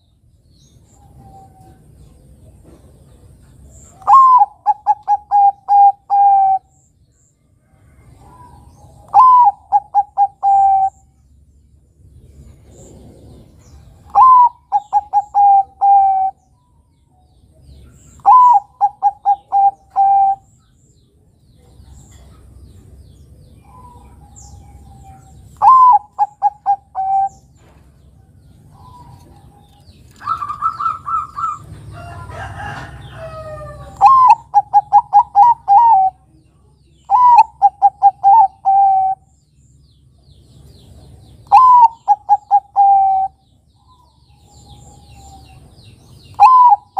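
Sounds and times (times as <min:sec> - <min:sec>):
dove cooing: 0:04.0 - 0:06.7, 0:08.2 - 0:11.1, 0:12.6 - 0:16.4, 0:18.1 - 0:20.5, 0:23.6 - 0:27.7, 0:28.6 - 0:36.3, 0:37.1 - 0:39.3, 0:41.4 - 0:45.6, 0:46.3 - 0:46.9.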